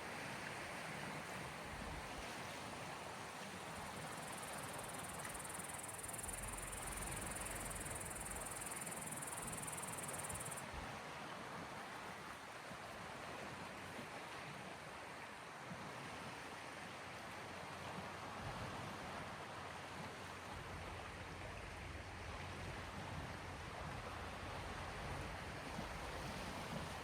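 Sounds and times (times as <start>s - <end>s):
small waves washing on shore: 0.0s - 27.0s.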